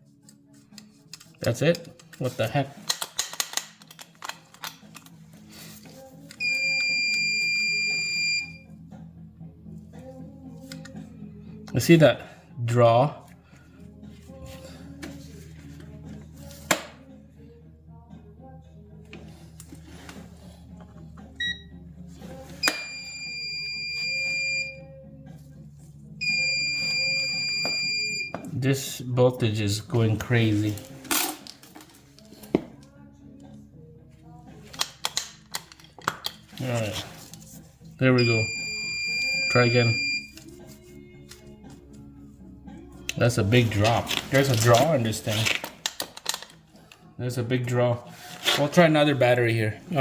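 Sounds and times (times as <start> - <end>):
faint background music: 0.0 - 50.0
short beep: 6.4 - 8.6, 38.2 - 40.3
loud electronic beep: 38.2 - 40.3.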